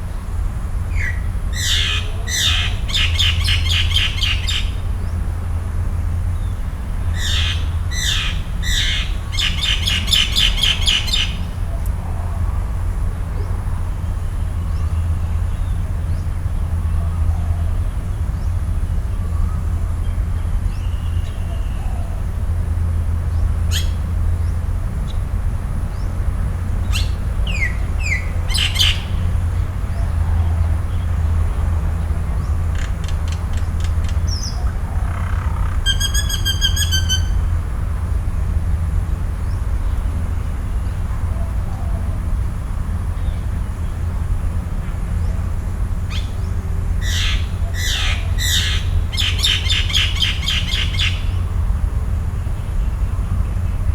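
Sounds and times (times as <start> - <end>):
birds calling: 0.0 - 5.3, 5.9 - 53.9
steady low rumble: 0.0 - 53.9
fast rattling bird trill: 1.0 - 4.8, 7.1 - 11.6, 26.9 - 29.3, 32.6 - 37.5, 47.0 - 51.5.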